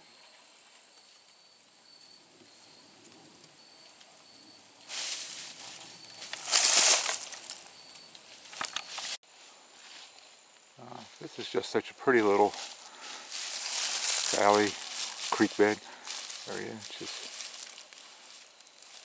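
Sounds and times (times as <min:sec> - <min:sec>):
insects chirping: 0:00.0 - 0:19.0
leaves rustling and crackling: 0:04.8 - 0:19.0
sharp crunches: 0:06.2 - 0:07.7, 0:12.6 - 0:19.0.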